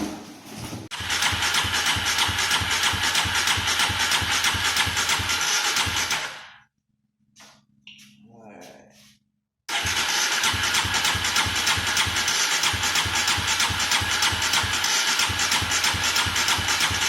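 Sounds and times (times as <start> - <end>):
engine cranking over: 0.9 - 6.6, 9.7 - 17.0.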